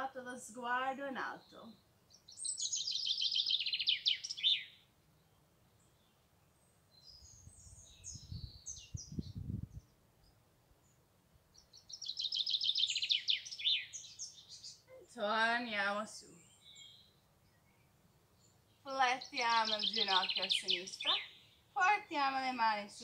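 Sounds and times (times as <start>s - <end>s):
bird chirps: 1.3s - 15.1s, 16.2s - 21.9s
songbird trilling: 2.2s - 4.8s, 11.6s - 15.1s, 18.7s - 21.9s.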